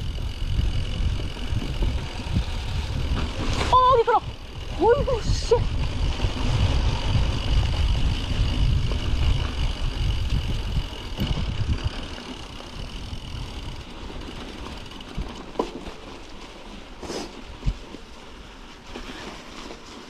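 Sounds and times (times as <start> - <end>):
wind on microphone: 0.0 - 15.4
bike tyres rumbling over ground: 0.0 - 20.0.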